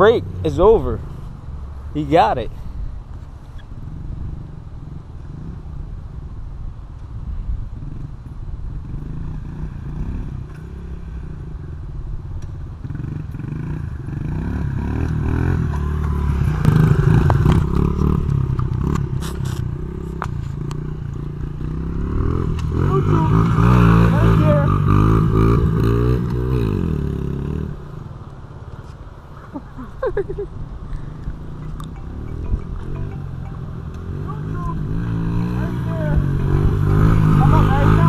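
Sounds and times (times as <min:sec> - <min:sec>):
small motorcycle engine revving: 0:12.8 - 0:27.9, 0:31.4 - 0:38.0.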